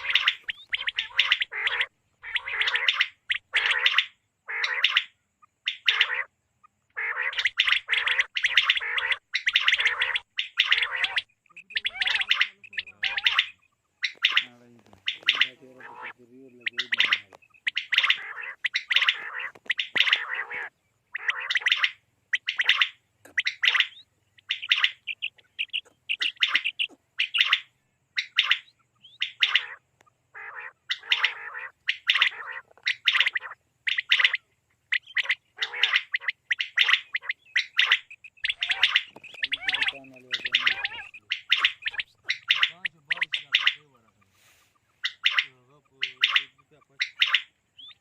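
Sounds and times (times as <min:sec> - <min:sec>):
quail calling: 0:00.0 - 0:48.0.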